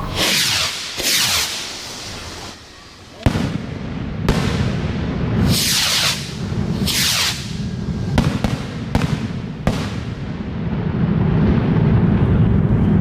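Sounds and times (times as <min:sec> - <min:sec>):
fireworks crackling hiss: 0:00.0 - 0:10.4
fireworks bangs: 0:00.0 - 0:13.0
low rumble: 0:06.2 - 0:13.0.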